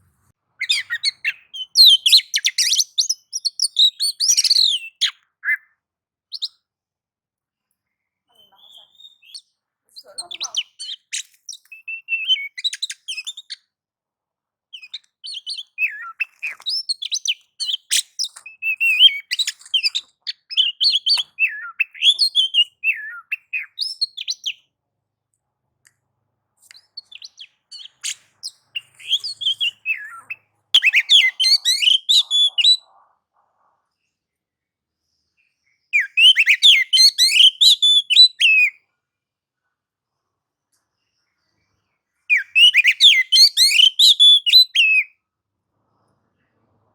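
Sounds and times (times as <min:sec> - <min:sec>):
bird singing chirps and whistles: 0:00.6 - 0:05.7, 0:06.3 - 0:06.6, 0:08.4 - 0:13.6, 0:14.8 - 0:24.6, 0:26.8 - 0:32.9, 0:36.0 - 0:38.8, 0:42.3 - 0:45.1.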